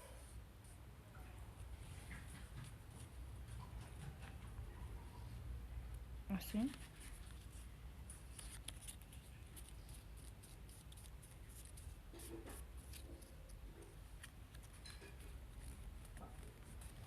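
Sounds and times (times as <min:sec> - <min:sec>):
low background hum: 0:00.0 - 0:17.0
paper rustling and creasing: 0:06.7 - 0:17.0.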